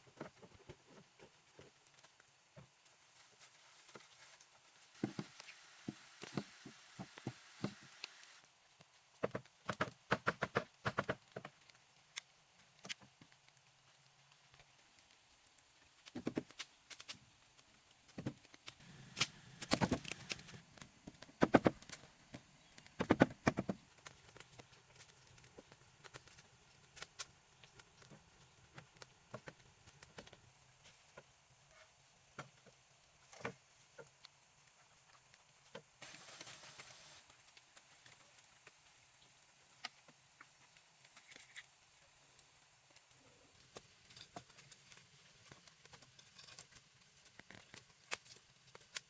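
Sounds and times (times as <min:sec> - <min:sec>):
sharp taps and knocks: 0:18.1 - 0:24.2.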